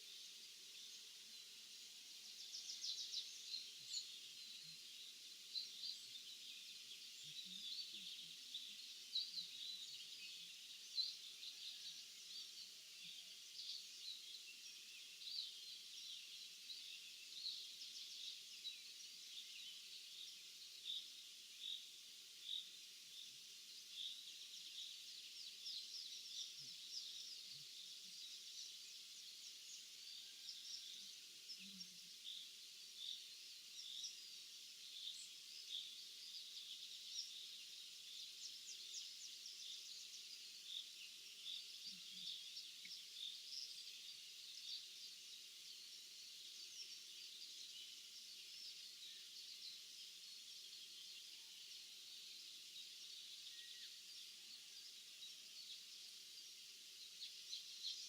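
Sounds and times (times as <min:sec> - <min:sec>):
small birds chirping: 0:00.0 - 0:58.0
steady hiss: 0:00.0 - 0:58.0.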